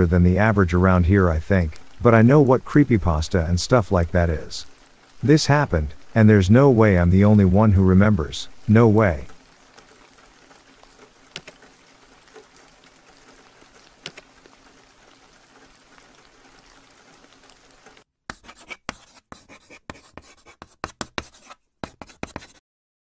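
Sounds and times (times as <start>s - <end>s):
steady rain: 0.0s - 18.1s
faint clicks: 9.3s - 18.0s
chalk scratching strokes: 18.3s - 22.6s.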